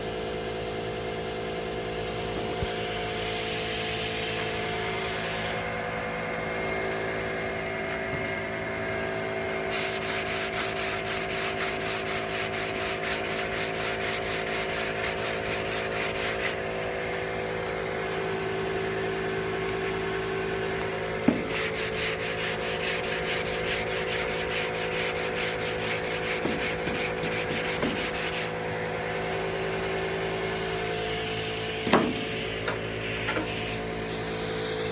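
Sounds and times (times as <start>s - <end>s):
steady hum: 1.9s - 34.9s
sandpaper strokes: 9.6s - 16.6s, 21.3s - 28.6s, 31.8s - 34.1s.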